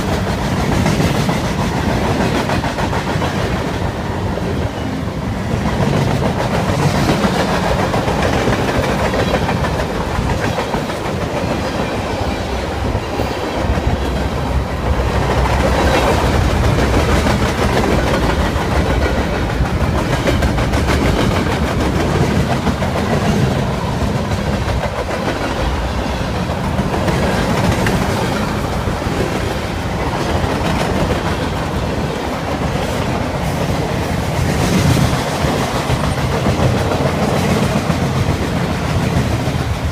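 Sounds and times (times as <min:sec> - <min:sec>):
train wheels rolling on rails: 0:00.0 - 0:39.9.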